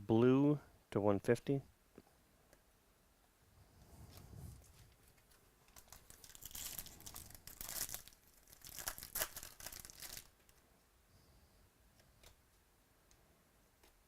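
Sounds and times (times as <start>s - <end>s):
foil wrapper tearing and crinkling: 5.8s - 10.4s.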